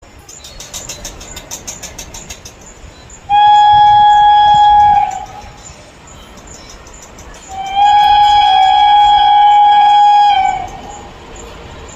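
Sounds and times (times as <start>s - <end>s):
train horn blast: 3.3s - 5.5s, 7.5s - 10.9s.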